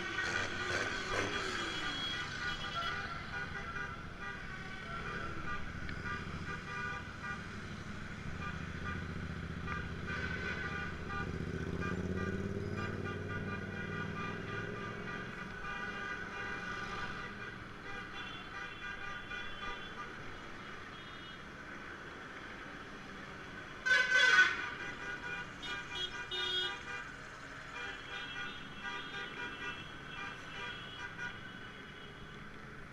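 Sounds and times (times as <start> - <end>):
tractor engines running: 0.0 - 2.1
horns sounding: 0.0 - 7.6, 8.3 - 20.1.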